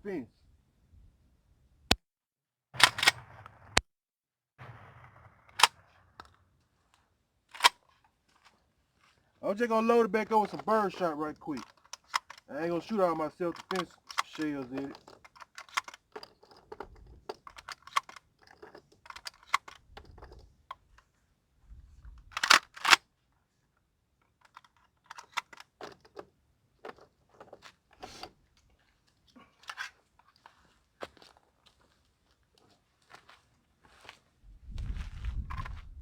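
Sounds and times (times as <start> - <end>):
sharp shotgun clacks: 2.8 - 3.8, 10.4 - 16.3, 22.3 - 23.0
shotgun shells clicking and rattling: 7.5 - 8.6, 9.5 - 21.1, 22.2 - 23.0, 24.2 - 30.7.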